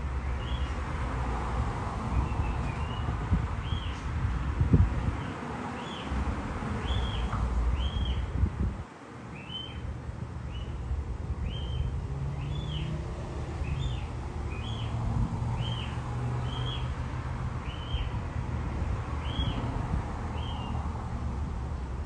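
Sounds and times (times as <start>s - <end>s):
bird chirping: 6.8s - 8.3s, 9.3s - 9.8s, 10.5s - 13.0s, 13.6s - 15.0s, 15.6s - 16.9s, 17.6s - 18.2s, 19.2s - 19.6s.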